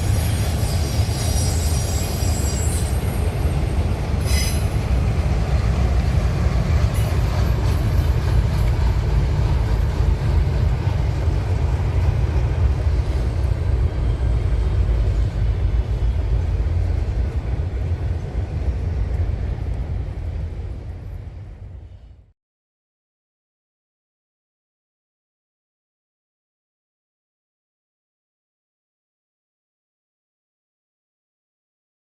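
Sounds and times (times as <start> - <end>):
train wheels rumbling on rail: 0.0 - 22.3.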